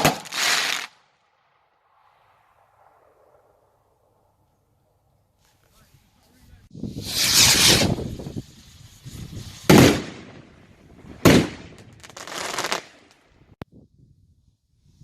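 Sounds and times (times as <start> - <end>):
fireworks bangs: 0.0 - 3.6, 6.8 - 13.2.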